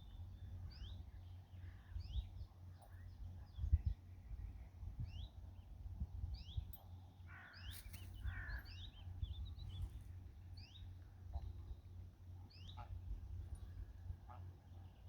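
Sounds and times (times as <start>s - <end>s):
steady low rumble: 0.0s - 6.8s
small birds chirping: 6.4s - 11.9s.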